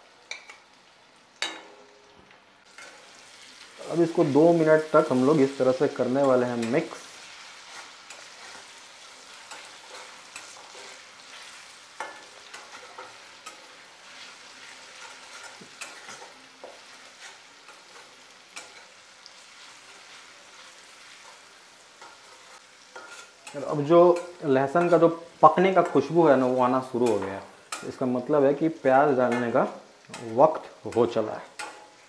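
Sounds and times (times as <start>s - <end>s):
food sizzling in hot oil: 0.0s - 32.0s
spatula clinking on iron: 0.3s - 0.6s, 1.4s - 1.9s, 7.7s - 19.0s, 19.6s - 25.1s, 29.2s - 32.0s
metal spatula scraping pan: 6.0s - 28.0s.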